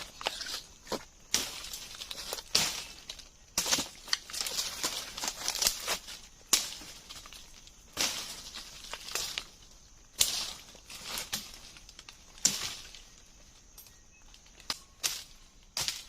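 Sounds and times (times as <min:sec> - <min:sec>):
rustling and crackling: 0:00.0 - 0:16.0.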